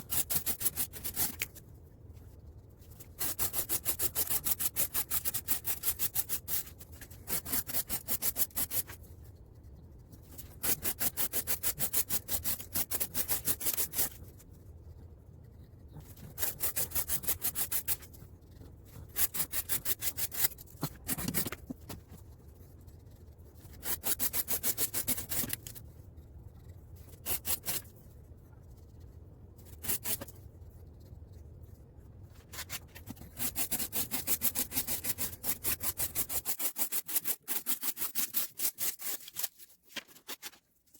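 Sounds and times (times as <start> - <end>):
knife blade scraping strokes: 0.0 - 1.6, 3.0 - 9.0, 10.3 - 14.3, 16.3 - 18.2, 19.0 - 21.6, 23.6 - 25.8, 27.0 - 27.9, 29.6 - 30.4, 32.4 - 40.6.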